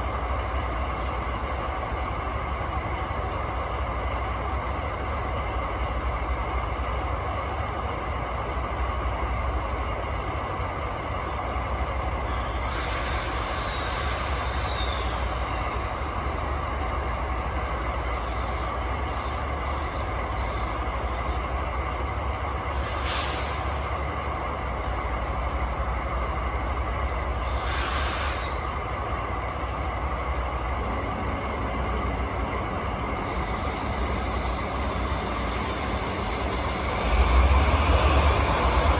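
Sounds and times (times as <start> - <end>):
diesel locomotive engines idling: 0.0 - 38.9
compressed air hissing: 27.4 - 28.6.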